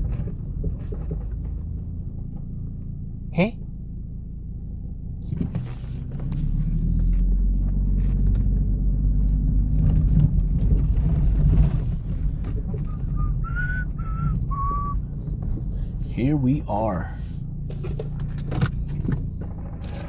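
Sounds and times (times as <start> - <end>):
car engine and road rumble: 0.0 - 20.0
short high-pitched squeaks: 12.9 - 15.0.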